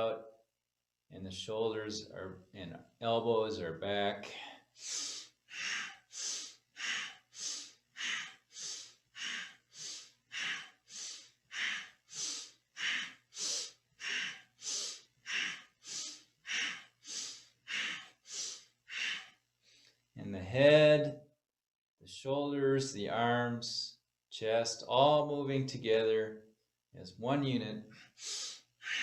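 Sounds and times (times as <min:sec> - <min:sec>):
forceful breathing through nose: 0:04.4 - 0:20.0, 0:28.0 - 0:29.0.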